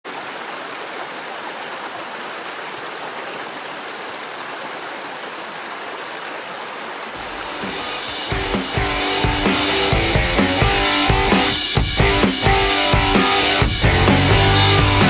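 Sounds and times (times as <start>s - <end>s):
stream rushing over rocks: 0.1s - 10.0s.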